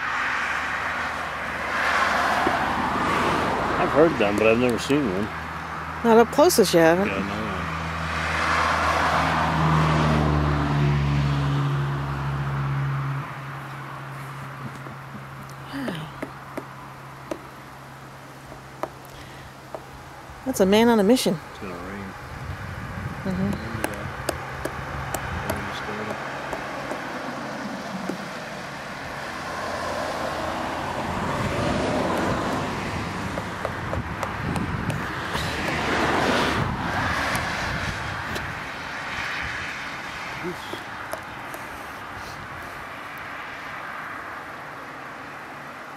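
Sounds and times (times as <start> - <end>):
low engine hum: 0.0 - 20.5, 21.2 - 43.2
car passing: 0.0 - 45.9
tyre noise: 23.2 - 28.8.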